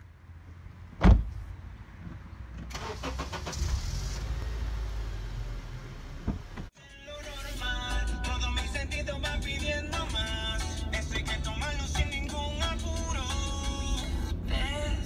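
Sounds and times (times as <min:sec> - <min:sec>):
loud thump: 0:01.0 - 0:01.4
car engine starting and idling: 0:02.4 - 0:15.0
music: 0:06.8 - 0:15.0.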